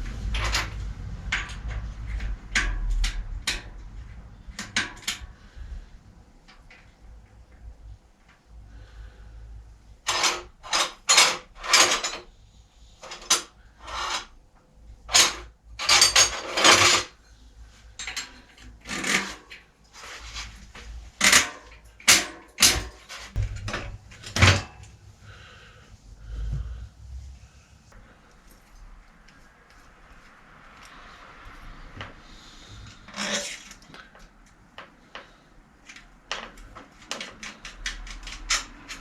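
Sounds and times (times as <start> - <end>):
tools and parts clattering: 10.1 - 12.3, 13.0 - 14.3, 15.1 - 17.3, 18.0 - 25.0, 33.0 - 34.3.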